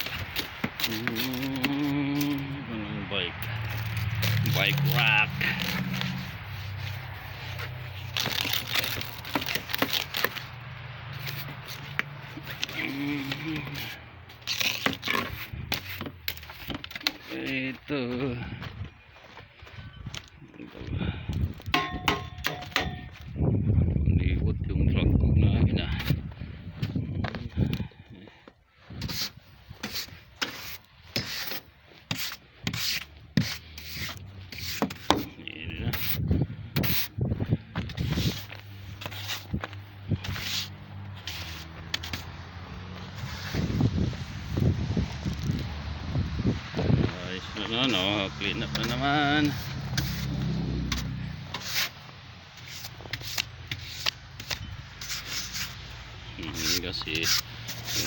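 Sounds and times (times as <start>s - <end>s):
snow brushed and scraped off car: 0.0s - 18.2s, 28.8s - 37.2s, 37.8s - 58.0s
snow brush sweeping snow: 4.2s - 9.2s, 38.0s - 44.6s, 51.4s - 58.0s.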